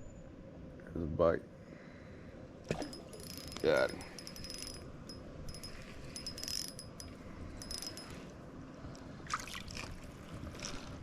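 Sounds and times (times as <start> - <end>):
fishing reel metallic clicking: 2.9 - 8.2.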